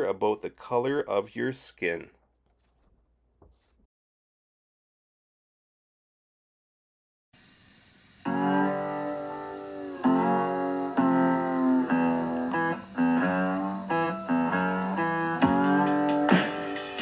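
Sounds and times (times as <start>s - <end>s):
plucked guitar chords: 8.3s - 17.0s.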